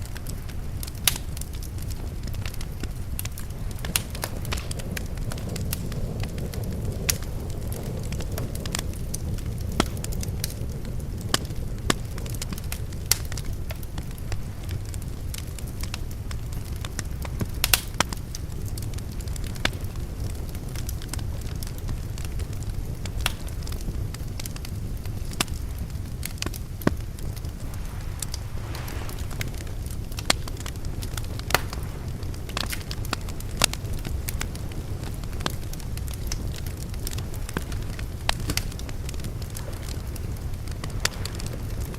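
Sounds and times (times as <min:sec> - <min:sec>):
low steady rumble: 0:00.0 - 0:41.9
wood fire crackling and popping: 0:00.0 - 0:41.9
low rumble: 0:25.6 - 0:34.6.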